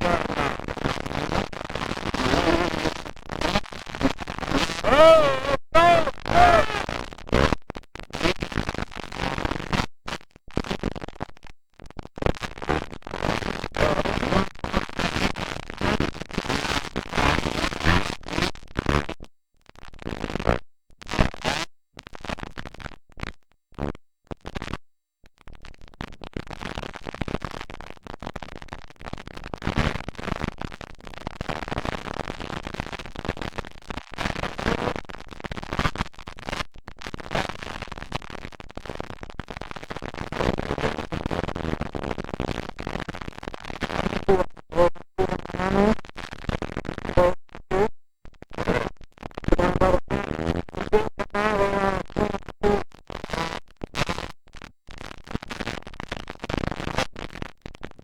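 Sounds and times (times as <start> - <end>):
harsh loud noise: 4.8 - 6.9.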